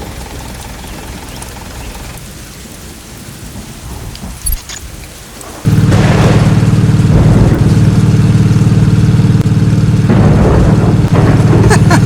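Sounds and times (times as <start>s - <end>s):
engine running loudly: 5.7s - 12.0s.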